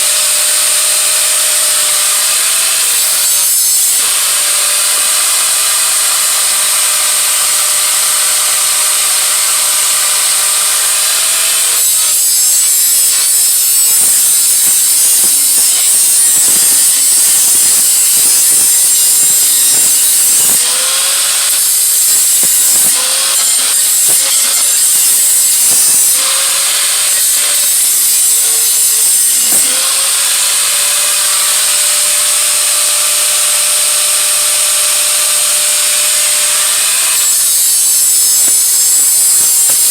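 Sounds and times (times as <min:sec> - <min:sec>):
rotary grinding tool whining: 0:00.0 - 0:39.9
scratchy grinding with knocks: 0:11.1 - 0:30.0.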